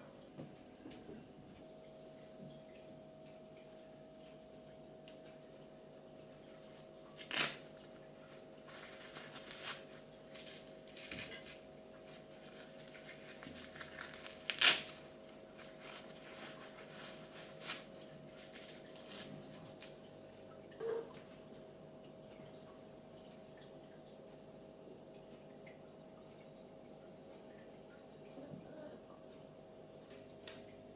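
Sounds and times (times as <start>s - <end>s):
faint steady hum: 0.0s - 30.9s
rustling and crinkling: 6.3s - 20.0s.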